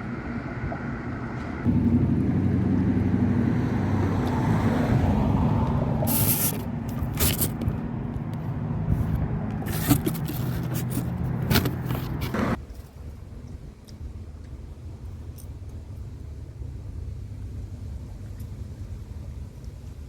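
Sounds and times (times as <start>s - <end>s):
engine running: 0.0s - 12.6s
short scraping noises: 6.0s - 7.8s, 8.9s - 12.6s.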